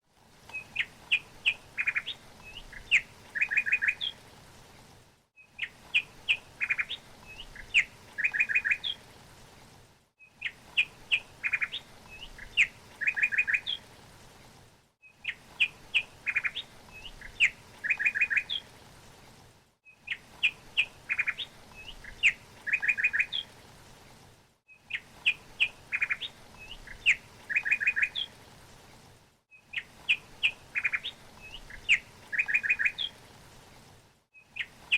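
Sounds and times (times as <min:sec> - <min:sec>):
songbird chirping: 0:00.4 - 0:04.2, 0:05.4 - 0:09.1, 0:10.2 - 0:13.9, 0:15.0 - 0:18.7, 0:19.8 - 0:23.6, 0:24.7 - 0:28.4, 0:29.5 - 0:33.2, 0:34.3 - 0:34.9.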